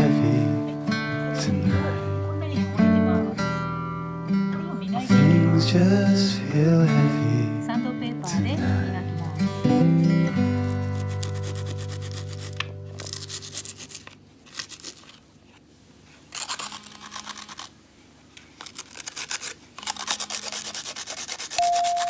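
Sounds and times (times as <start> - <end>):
sandpaper rubbing: 10.2 - 15.2, 18.6 - 22.0
song ending: 21.6 - 22.0.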